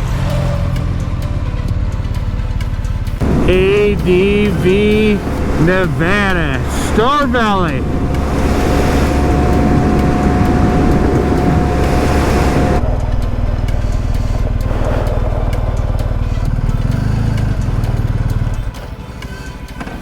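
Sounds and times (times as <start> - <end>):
motorcycle engine: 2.9 - 6.0, 7.8 - 18.8
wind rush: 3.2 - 16.2.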